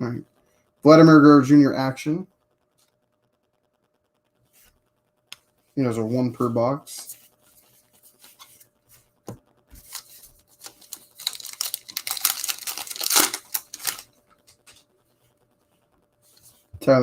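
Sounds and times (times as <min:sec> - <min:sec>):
wrapper tearing and crinkling: 0:09.8 - 0:14.1.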